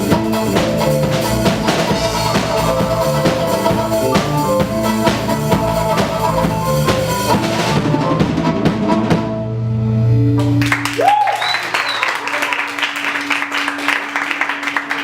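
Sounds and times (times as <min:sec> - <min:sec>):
live band playing: 0:00.0 - 0:11.9
audience applause: 0:10.6 - 0:15.0.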